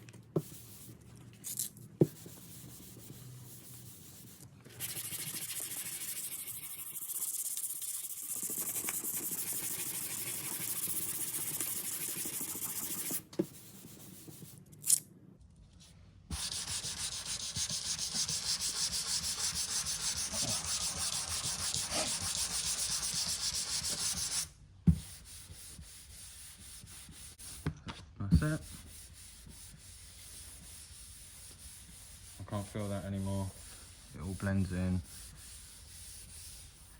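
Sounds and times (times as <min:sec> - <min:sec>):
hand sanding metal panel: 0:02.1 - 0:13.2, 0:16.3 - 0:27.6, 0:28.5 - 0:36.9.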